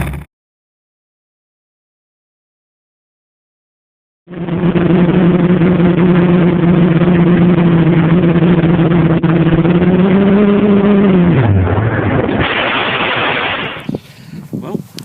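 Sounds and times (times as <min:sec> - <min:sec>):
drone propellers humming: 0:04.3 - 0:14.3.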